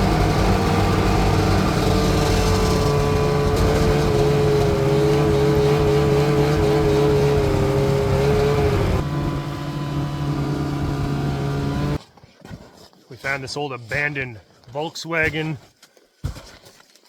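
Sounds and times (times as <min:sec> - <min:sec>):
snowmobile engine running: 0:00.0 - 0:12.0.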